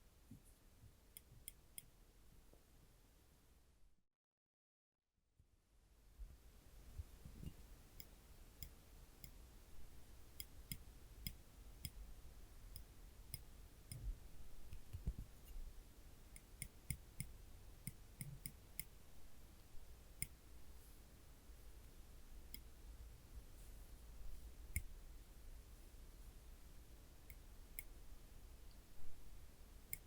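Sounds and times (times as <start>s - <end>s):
tweezer tips clicking: 10.4s - 12.0s, 12.7s - 14.1s, 16.3s - 19.0s.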